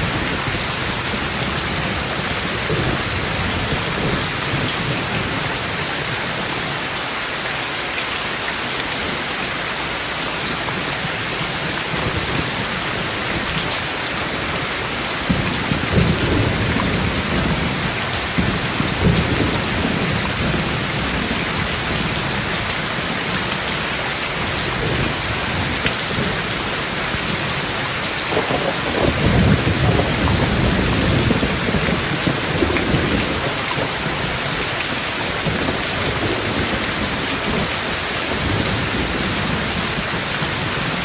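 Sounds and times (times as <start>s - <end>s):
heavy rain hissing: 0.0s - 41.0s
thunder rumble: 15.2s - 23.5s, 24.4s - 41.0s.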